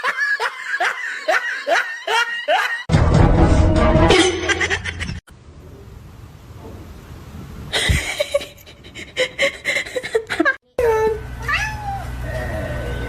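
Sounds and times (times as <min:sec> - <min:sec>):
people laughing loudly: 0:00.0 - 0:02.9, 0:08.0 - 0:10.6.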